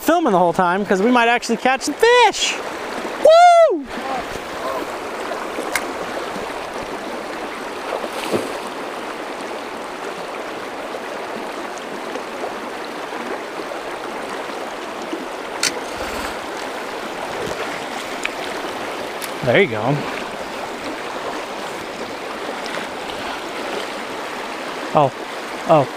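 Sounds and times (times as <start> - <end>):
river water rushing: 0.0 - 25.9.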